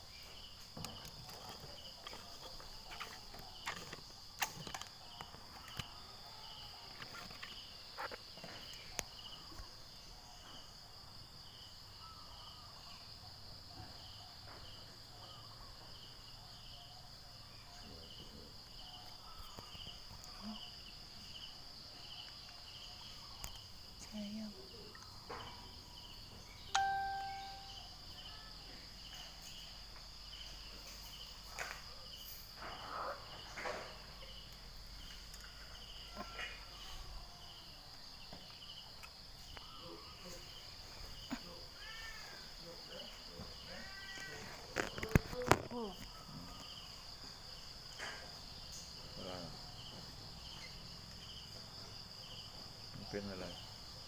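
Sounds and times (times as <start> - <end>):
insects trilling: 0.0 - 54.0
ringing tone: 26.7 - 27.9.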